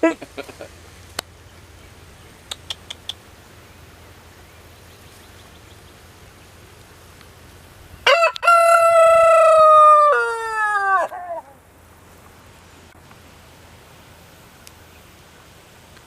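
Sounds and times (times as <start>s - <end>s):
rooster crowing: 8.0s - 11.6s.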